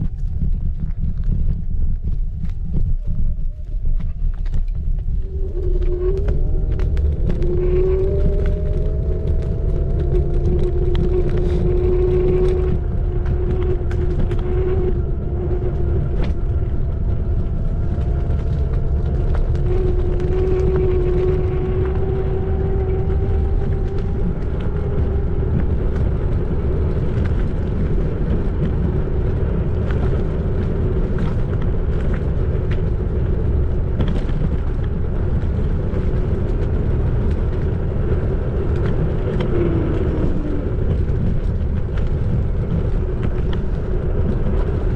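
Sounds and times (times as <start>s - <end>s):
wind and road rumble: 0.0s - 44.9s
electric motor whine: 4.6s - 30.2s.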